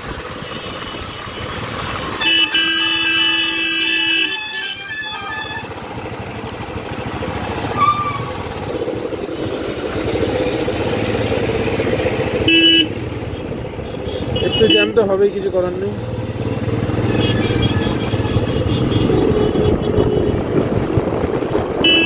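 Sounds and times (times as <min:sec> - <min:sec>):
road traffic: 0:00.0 - 0:22.0
vehicle horn: 0:00.4 - 0:05.8, 0:12.4 - 0:13.0, 0:13.8 - 0:15.0, 0:17.0 - 0:20.6, 0:21.8 - 0:22.0.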